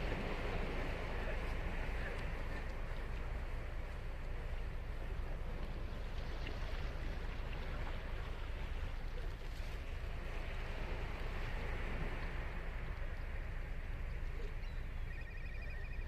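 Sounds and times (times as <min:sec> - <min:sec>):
ocean waves breaking on beach: 0:00.0 - 0:16.0.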